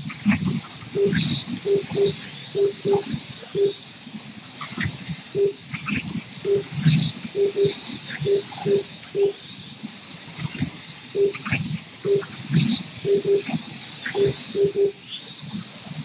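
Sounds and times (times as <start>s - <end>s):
short low beeps: 1.0s - 3.0s, 3.6s - 3.8s, 14.2s - 15.0s.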